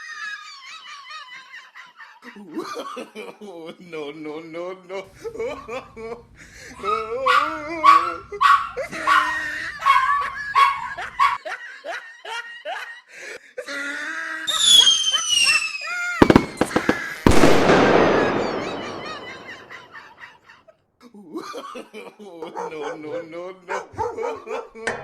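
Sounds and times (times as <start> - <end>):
falling whistle: 14.5 - 19.7
firecracker bang: 16.2 - 20.0
sharp cracks: 16.2 - 20.0.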